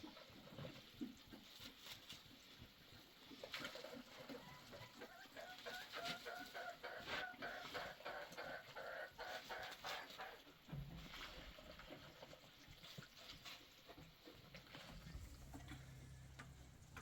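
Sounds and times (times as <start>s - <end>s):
hen clucking: 4.2s - 10.6s.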